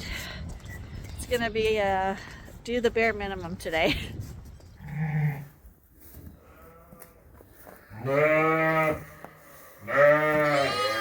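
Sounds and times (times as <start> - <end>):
sheep bleating: 8.0 - 11.0.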